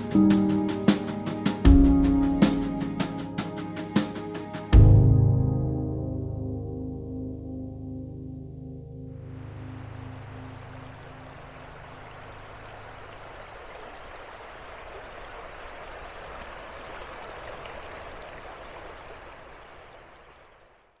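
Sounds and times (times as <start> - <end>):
running water rushing: 0.0 - 5.1, 9.3 - 20.7
ambient music: 0.0 - 12.6.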